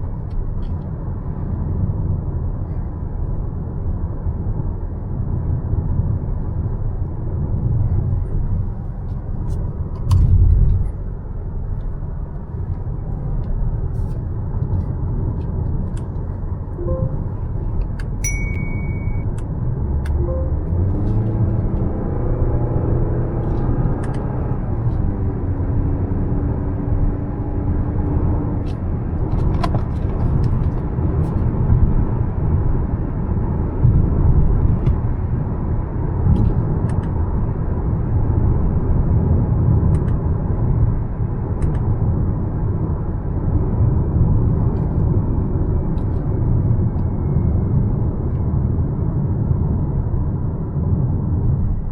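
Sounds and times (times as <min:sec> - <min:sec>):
tyre road rumble: 0:00.0 - 0:51.9
high beep: 0:16.8 - 0:17.5, 0:18.2 - 0:19.3, 0:20.2 - 0:20.8.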